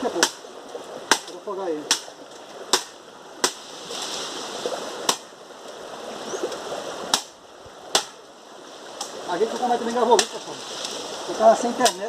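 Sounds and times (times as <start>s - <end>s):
blade chopping into wood: 1.1s - 2.1s, 2.7s - 3.6s, 7.1s - 7.3s, 7.9s - 8.2s.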